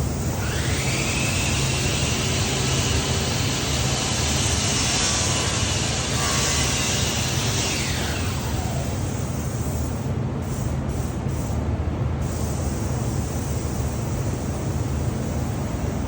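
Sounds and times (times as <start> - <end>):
rising whine: 0.0 - 9.4.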